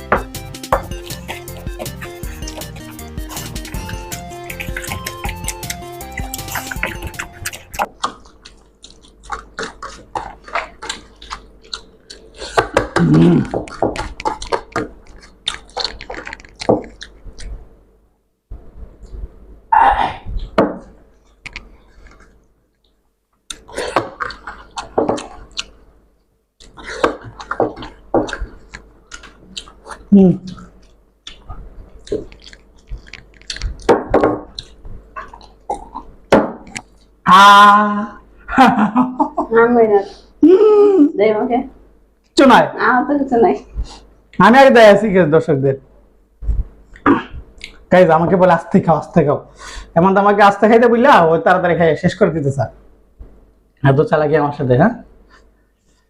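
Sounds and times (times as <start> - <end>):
wet chewing and mouth smacking: 0.7 - 17.6, 21.3 - 25.8, 26.6 - 36.1, 46.9 - 47.9
person humming: 0.8 - 7.8, 12.8 - 13.7.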